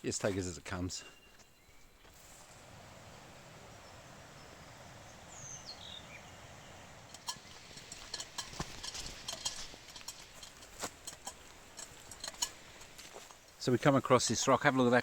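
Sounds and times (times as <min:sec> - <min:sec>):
stream water rushing: 0:02.3 - 0:14.3
bird whistled call: 0:04.4 - 0:06.4
footsteps on stony track: 0:07.2 - 0:14.4.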